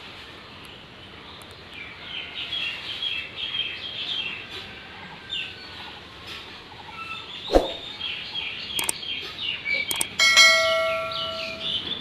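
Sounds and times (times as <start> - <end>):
bird chirping: 7.1 - 10.2.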